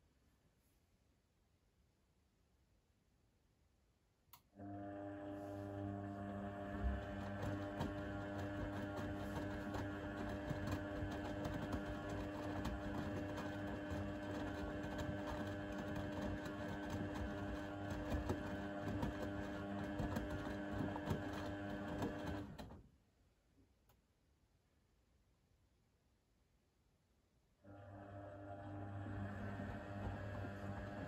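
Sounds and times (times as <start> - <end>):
washing machine motor hum: 4.6 - 22.8, 27.6 - 31.0.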